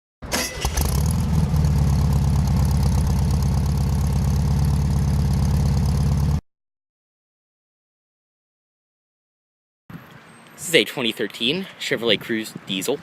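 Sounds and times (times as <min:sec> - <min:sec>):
diesel engine idling: 0:00.4 - 0:06.4.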